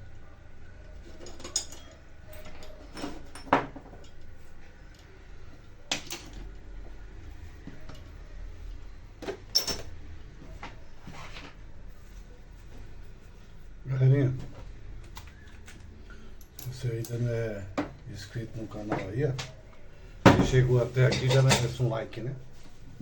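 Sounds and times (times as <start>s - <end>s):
metallic clinks of tools: 9.5s - 9.8s.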